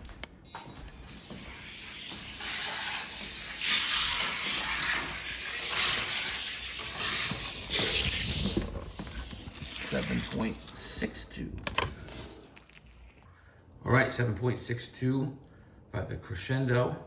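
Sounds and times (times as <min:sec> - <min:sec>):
toy car rattling down track: 0:01.2 - 0:11.3.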